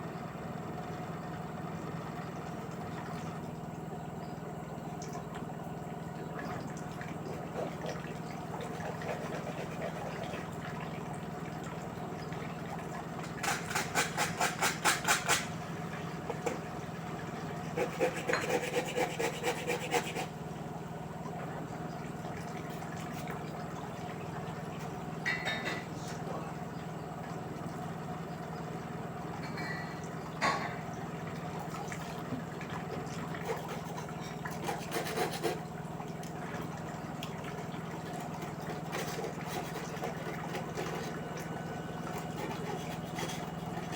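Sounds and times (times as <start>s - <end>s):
washing machine motor hum: 0.0s - 43.9s
wet laundry swishing in drum: 36.4s - 43.9s.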